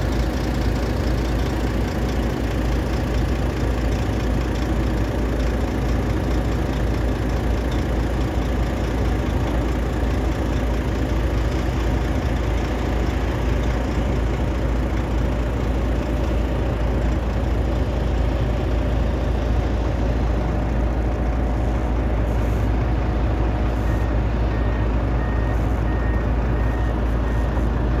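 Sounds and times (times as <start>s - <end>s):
heavy diesel engine running: 0.0s - 28.0s
faint repeated beep: 23.8s - 27.8s.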